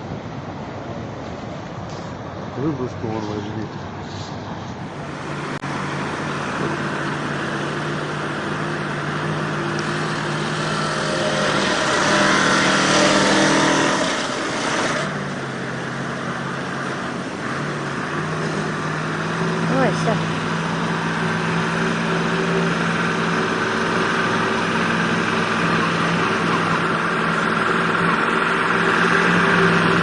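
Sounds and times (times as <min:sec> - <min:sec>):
truck engine revving: 0:04.8 - 0:30.0.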